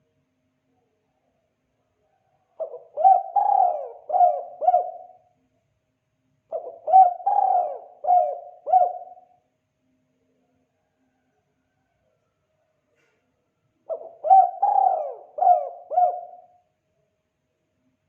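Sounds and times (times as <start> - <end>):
dove cooing: 2.6 - 5.3, 6.5 - 9.4, 13.9 - 16.6.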